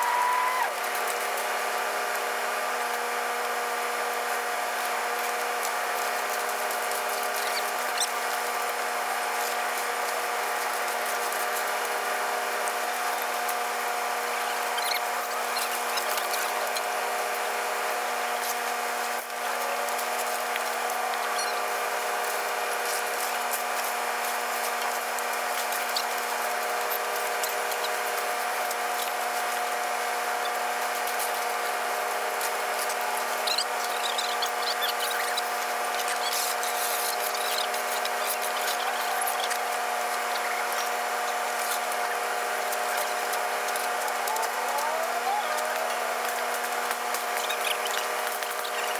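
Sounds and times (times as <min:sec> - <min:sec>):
machine whining steadily: 0:00.0 - 0:48.9.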